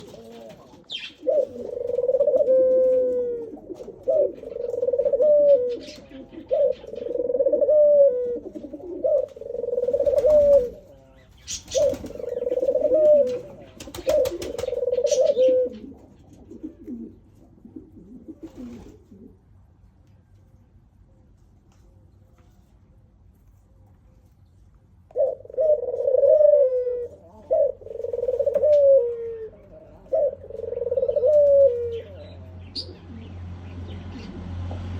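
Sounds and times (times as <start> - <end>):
bird calling: 0.8 - 16.0.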